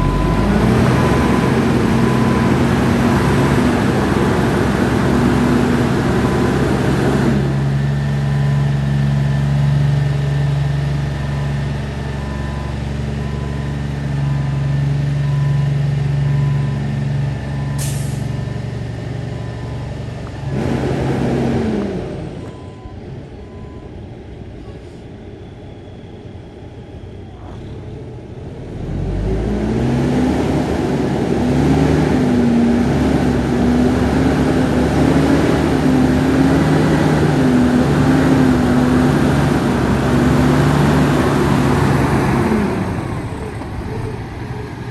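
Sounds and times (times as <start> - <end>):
faint repeating beep: 0.0 - 3.5
diesel truck engine revving: 0.0 - 23.8, 27.2 - 44.9.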